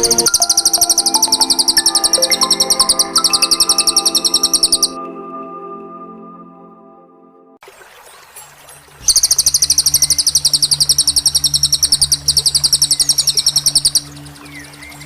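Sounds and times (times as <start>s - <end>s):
songbird trilling: 0.0s - 5.0s, 9.1s - 15.0s
faint background music drone: 0.0s - 7.6s, 9.4s - 15.0s.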